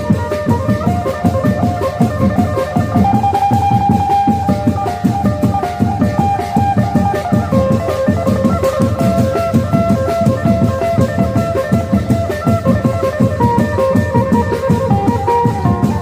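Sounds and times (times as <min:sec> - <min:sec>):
quick drum beat: 0:00.0 - 0:16.0.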